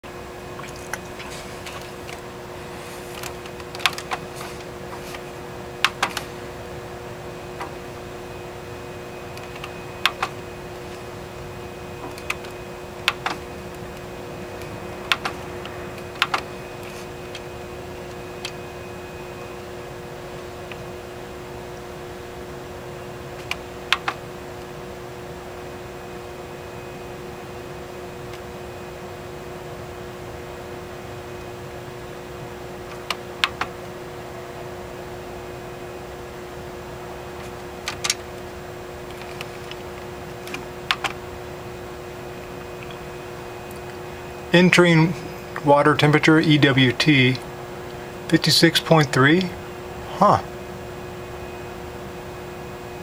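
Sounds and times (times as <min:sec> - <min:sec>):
mechanical hum with two tones: 0:00.0 - 0:53.0
sharp clicks: 0:05.8 - 0:06.3.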